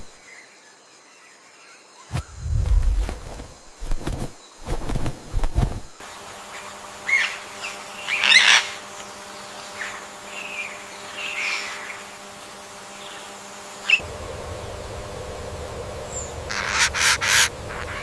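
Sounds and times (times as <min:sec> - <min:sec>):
low thumps: 0:02.1 - 0:06.0
faint steady hum: 0:02.1 - 0:18.0
birds chirping and squawking: 0:07.0 - 0:08.9, 0:09.6 - 0:12.2, 0:16.0 - 0:18.0.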